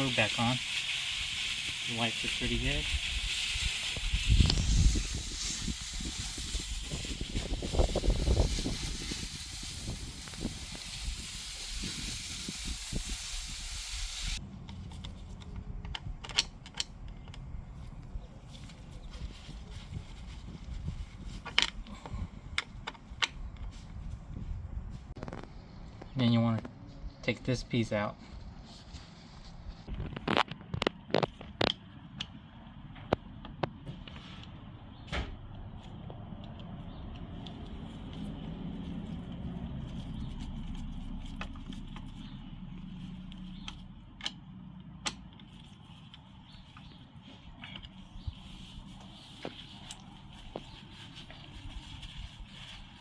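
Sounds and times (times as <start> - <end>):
steady hiss: 0.0 - 14.4
clicks and knocks of parts: 14.6 - 17.5
sharp clicks and knocks of parts: 14.6 - 17.5, 22.5 - 23.7, 43.6 - 46.9.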